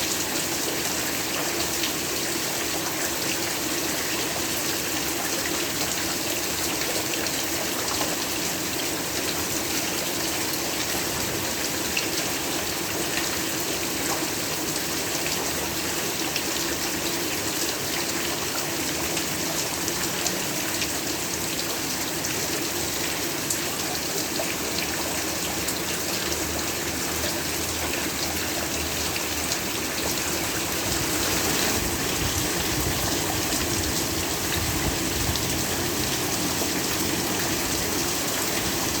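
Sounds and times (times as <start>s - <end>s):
heavy rain falling: 12.3s - 39.0s.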